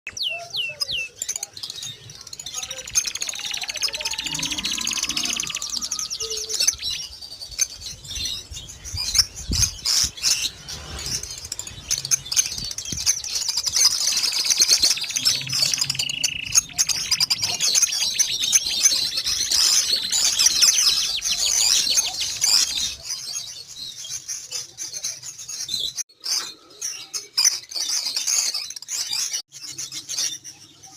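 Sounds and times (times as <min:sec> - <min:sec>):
canary singing high trills: 0:00.1 - 0:23.4.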